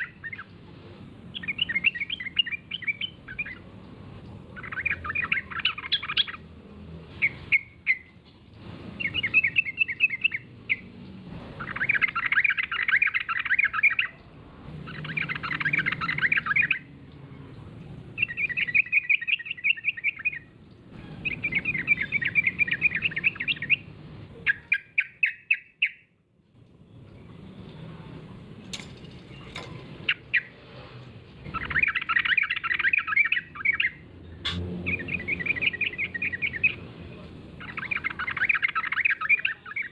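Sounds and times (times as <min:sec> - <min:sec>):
bird singing chattering phrases: 0:00.0 - 0:00.6, 0:01.3 - 0:03.7, 0:04.5 - 0:06.5, 0:11.6 - 0:20.6, 0:21.2 - 0:26.0, 0:31.4 - 0:39.9.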